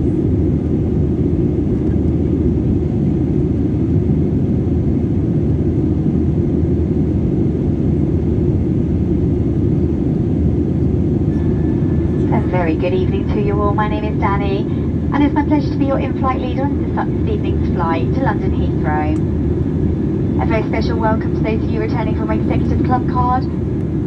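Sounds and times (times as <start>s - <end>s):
airliner cabin engine rumble: 0.0s - 24.0s
airflow noise: 11.1s - 24.0s.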